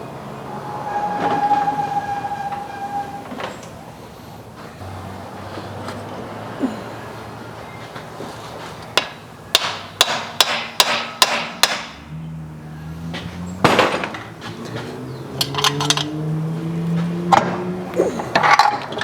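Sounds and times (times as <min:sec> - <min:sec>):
hammer striking metal: 0:09.6 - 0:11.9.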